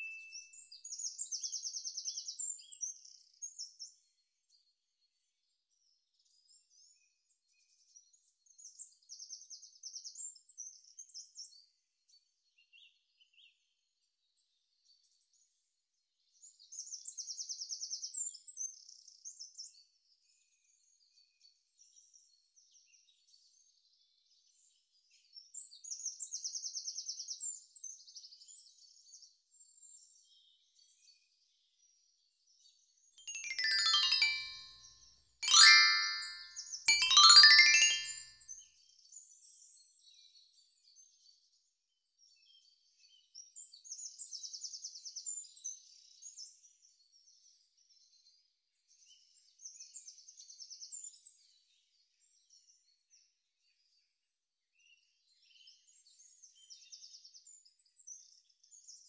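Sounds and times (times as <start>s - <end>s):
bird chirps: 0.0s - 0.4s.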